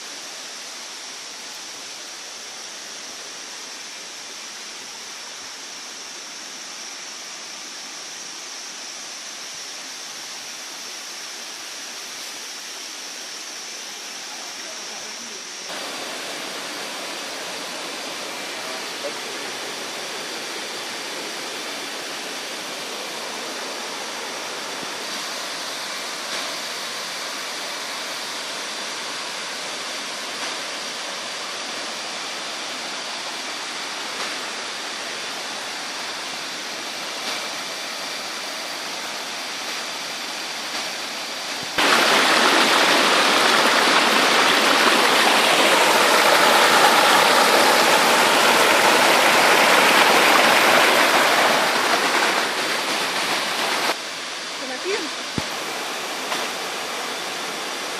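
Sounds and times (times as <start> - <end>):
waterfall rushing: 11.8 - 57.9.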